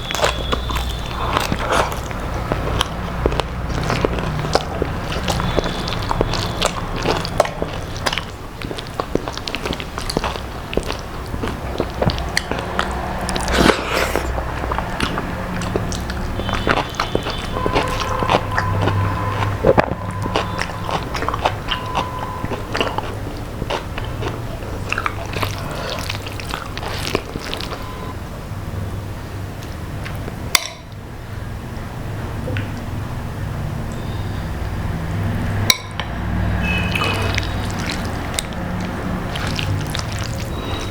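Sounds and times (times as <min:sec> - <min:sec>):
chewing crispy fried food: 0:00.0 - 0:28.1, 0:36.1 - 0:40.9
wet mouth clicks: 0:00.1 - 0:18.8, 0:36.7 - 0:40.9.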